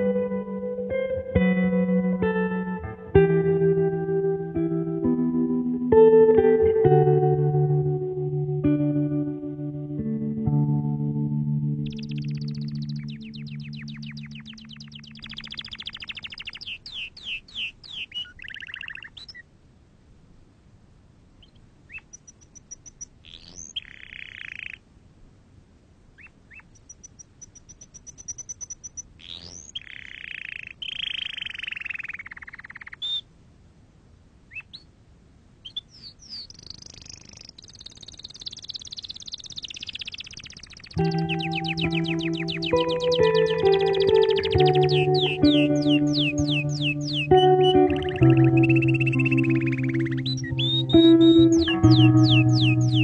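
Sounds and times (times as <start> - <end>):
music: 0.0 - 15.0, 41.0 - 53.0
songbird chirping and trilling: 0.0 - 19.5, 21.4 - 24.9, 26.2 - 33.3, 34.5 - 34.9, 35.6 - 53.0.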